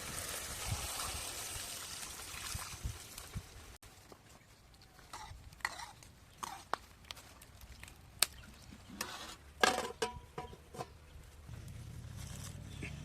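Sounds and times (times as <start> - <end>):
utensils scraping in cooking pot: 5.1 - 6.7, 8.9 - 9.4.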